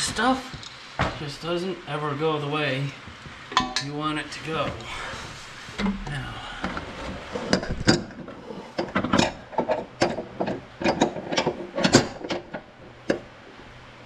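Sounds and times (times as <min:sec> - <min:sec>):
hand tools clanking on metal: 0:03.5 - 0:04.0.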